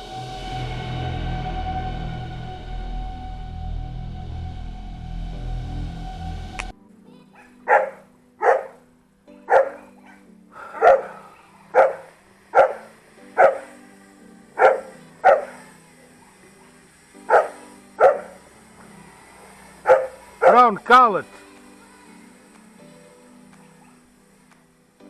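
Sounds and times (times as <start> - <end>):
dog barking: 7.3 - 8.8, 9.4 - 13.8, 14.6 - 15.8, 17.2 - 18.4, 19.8 - 20.7, 23.6 - 24.1.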